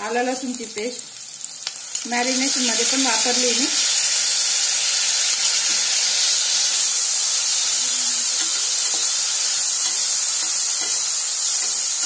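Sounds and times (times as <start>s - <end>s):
onions sizzling in hot oil: 0.0s - 12.0s
metal spatula stirring: 8.1s - 12.0s.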